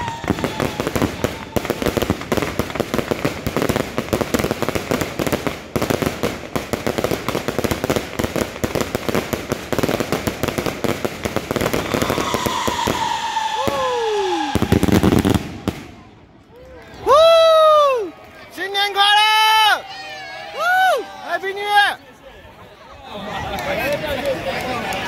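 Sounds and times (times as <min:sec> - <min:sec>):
fireworks crackling and banging: 0:00.0 - 0:19.6.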